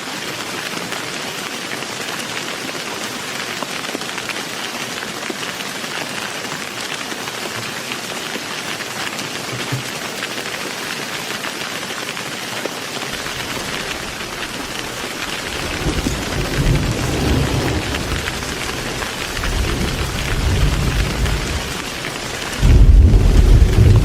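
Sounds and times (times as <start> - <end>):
heavy rain: 0.0 - 24.0
thunder rumbling: 13.1 - 24.0
loud thunderclap: 13.2 - 24.0.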